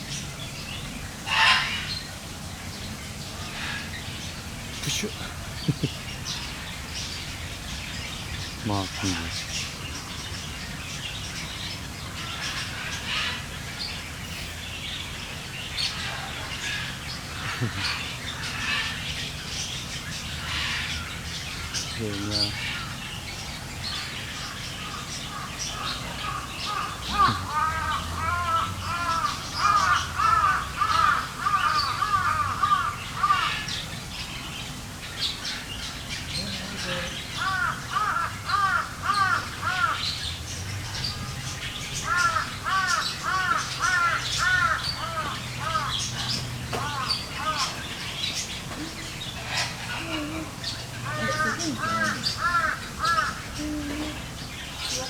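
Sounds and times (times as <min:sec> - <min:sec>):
small birds chirping: 0:00.0 - 0:55.0
crow cawing: 0:24.4 - 0:33.9, 0:37.4 - 0:40.2, 0:42.0 - 0:47.8, 0:49.6 - 0:54.2.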